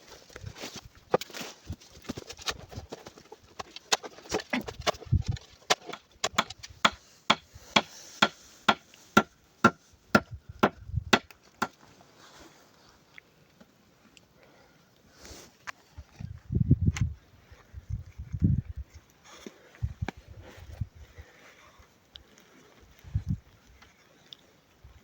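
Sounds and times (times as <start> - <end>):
chopping strikes: 5.7 - 11.8.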